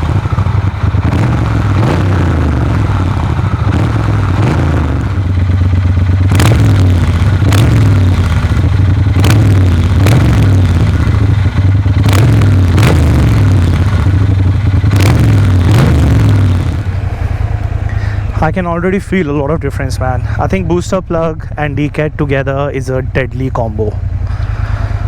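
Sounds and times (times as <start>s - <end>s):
motorcycle engine loud and deep: 0.0s - 25.0s.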